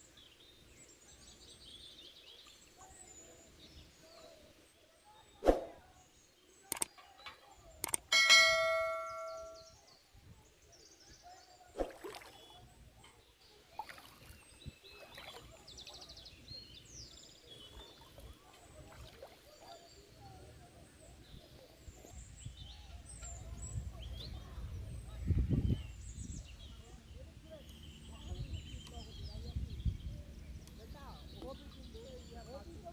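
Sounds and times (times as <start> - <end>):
birdsong chirping: 0.0 - 10.0, 12.2 - 32.9
light clicks: 6.7 - 6.9, 7.8 - 8.1
bell-like chime: 8.1 - 9.8.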